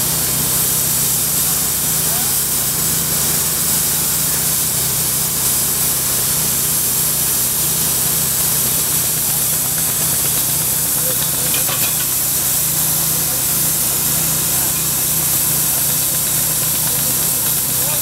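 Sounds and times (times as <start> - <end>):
strong machine hiss: 0.0 - 18.0.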